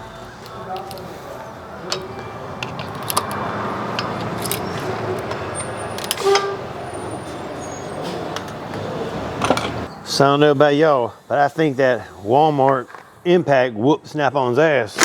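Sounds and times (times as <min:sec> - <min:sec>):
metallic clicks and clanks: 0:00.4 - 0:01.1, 0:01.8 - 0:06.6
impact wrench hammering: 0:01.8 - 0:06.5.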